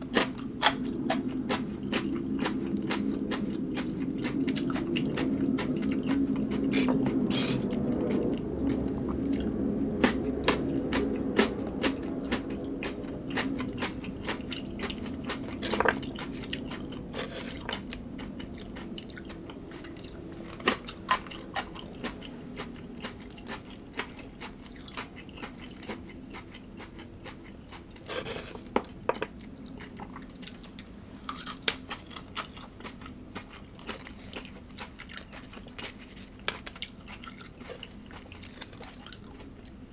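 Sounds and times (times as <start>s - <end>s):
person chewing crunchy food: 0.0s - 39.8s
low hum: 0.4s - 23.0s.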